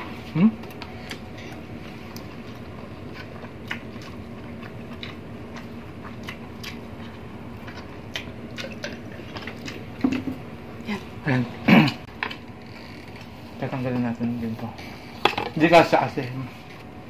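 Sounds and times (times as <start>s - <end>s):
faint steady hum: 0.0s - 17.0s
wet chewing and smacking: 0.6s - 10.3s.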